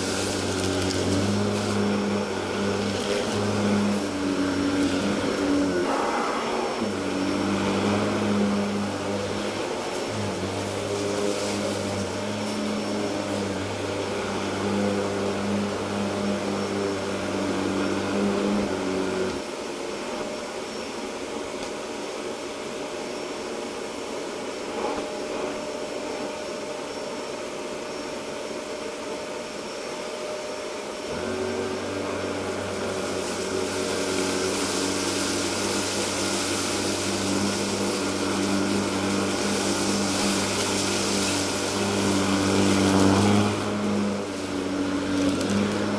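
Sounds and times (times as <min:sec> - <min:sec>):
vacuum cleaner on carpet: 0:00.0 - 0:45.9
low hum: 0:00.7 - 0:10.3.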